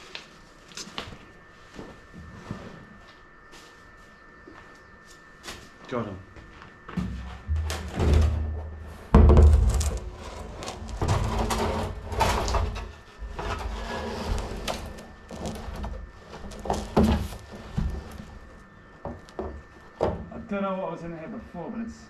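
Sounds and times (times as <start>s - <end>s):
knocks and thumps of objects: 6.9s - 10.2s.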